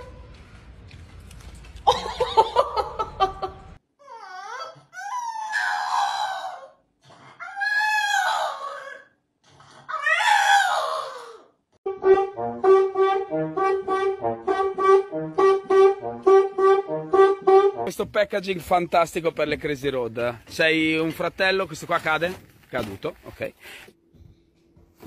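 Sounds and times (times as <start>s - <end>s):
bouncy brass music: 11.9s - 18.1s.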